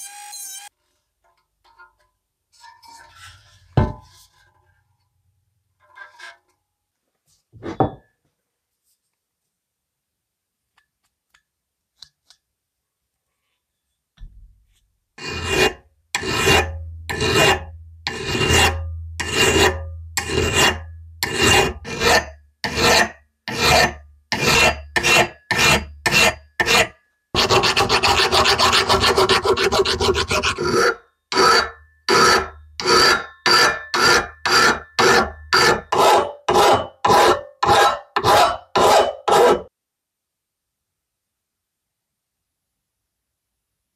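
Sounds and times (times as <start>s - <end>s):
metal being hand-filed: 15.2s - 39.7s
low steady hum: 16.7s - 21.9s.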